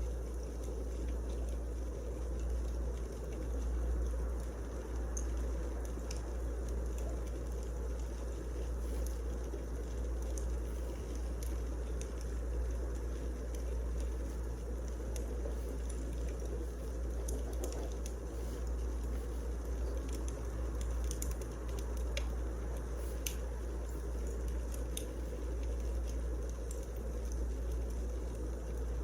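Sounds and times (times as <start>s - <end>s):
wood fire crackling and popping: 0.0s - 29.0s.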